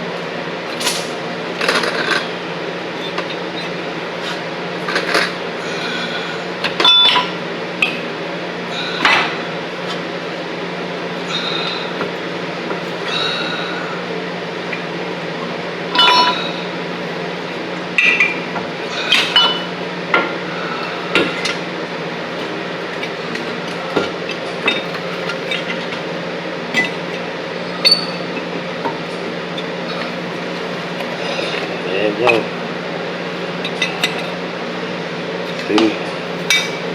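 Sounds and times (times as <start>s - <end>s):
steady low hum: 0.0s - 36.9s
metal tools clinking: 15.9s - 16.7s.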